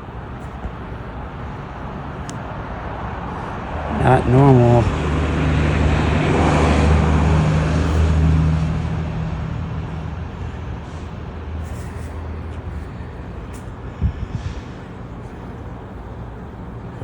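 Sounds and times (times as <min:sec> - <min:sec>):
traffic noise: 0:00.0 - 0:17.0
vehicle engine passing: 0:02.7 - 0:13.7.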